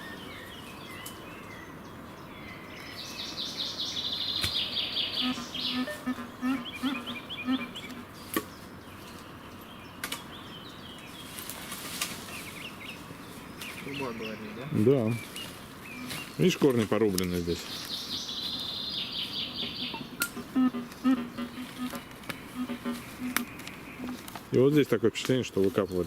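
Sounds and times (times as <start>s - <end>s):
songbirds singing: 0.0s - 26.0s
bird trill: 2.5s - 8.1s, 17.8s - 24.2s.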